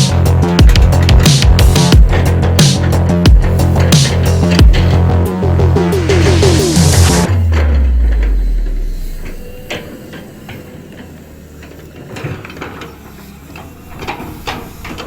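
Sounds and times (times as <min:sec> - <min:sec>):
metallic clicks and clanks: 0:00.0 - 0:05.2
deep bass music note: 0:00.0 - 0:09.5
heavy machinery rumble: 0:00.0 - 0:15.0.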